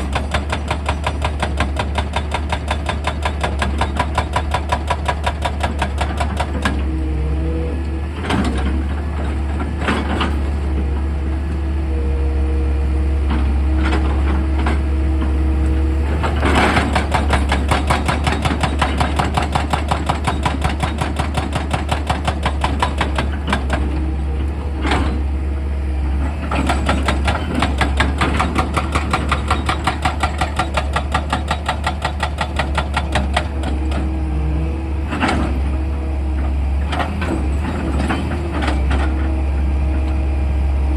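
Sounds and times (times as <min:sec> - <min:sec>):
rapid rhythmic rock drilling: 0:00.0 - 0:06.9, 0:16.0 - 0:24.1, 0:26.2 - 0:34.1
diesel engine droning: 0:05.4 - 0:40.9.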